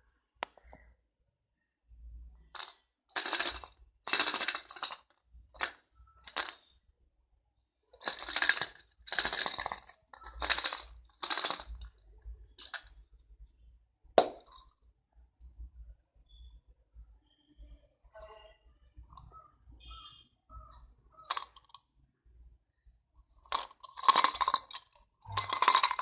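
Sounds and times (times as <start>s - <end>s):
toy noisemaker rattling: 2.6s - 5.0s, 5.6s - 6.6s, 8.0s - 12.9s, 20.7s - 21.8s, 23.4s - 26.0s.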